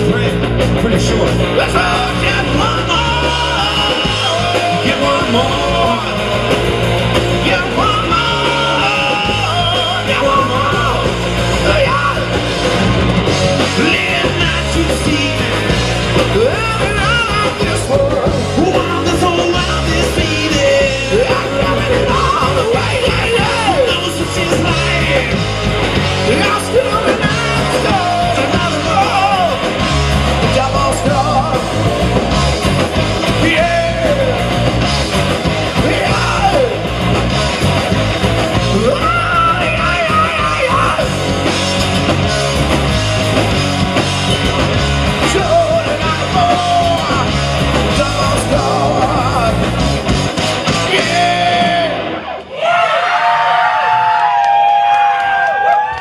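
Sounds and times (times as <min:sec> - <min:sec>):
person singing: 0:00.0 - 0:12.4, 0:26.2 - 0:32.0, 0:35.7 - 0:36.9, 0:45.2 - 0:49.7, 0:50.8 - 0:52.0
live rock band playing: 0:00.0 - 0:52.5.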